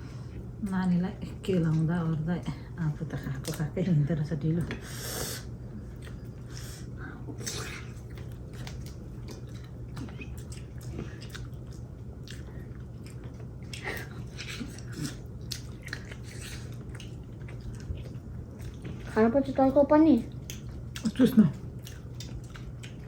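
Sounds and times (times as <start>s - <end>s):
steady low hum: 0.0s - 23.0s
food being bitten and chewed: 5.8s - 6.5s, 7.4s - 19.1s, 20.3s - 23.0s.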